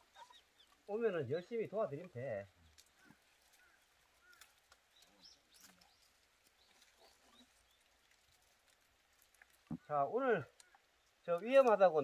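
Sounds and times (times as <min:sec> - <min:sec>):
faint high bird chirps: 0:00.0 - 0:00.8, 0:02.9 - 0:07.9.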